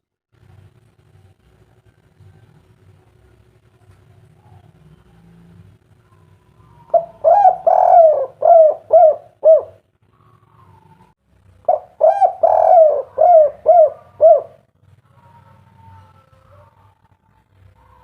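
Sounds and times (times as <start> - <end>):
dove cooing: 6.0 - 18.0.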